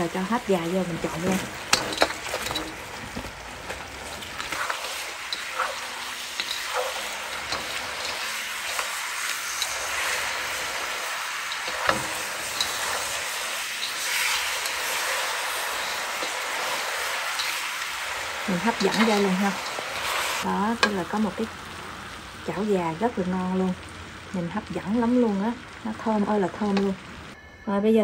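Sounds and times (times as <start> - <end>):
sizzling in a wok: 0.0 - 27.4
utensils clicking against a wok: 0.6 - 21.4, 26.1 - 27.0.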